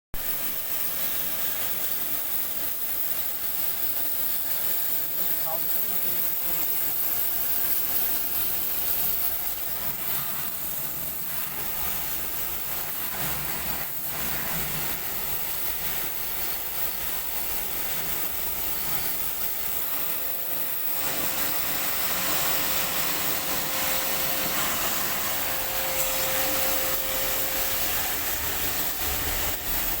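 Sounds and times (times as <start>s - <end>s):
air conditioner blowing air: 1.0s - 30.0s.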